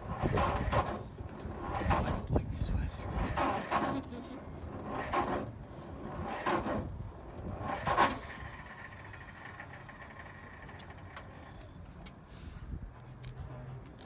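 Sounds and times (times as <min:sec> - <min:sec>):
engine failing to start: 0:00.0 - 0:02.3, 0:03.0 - 0:11.3
low steady rumble: 0:00.0 - 0:14.0.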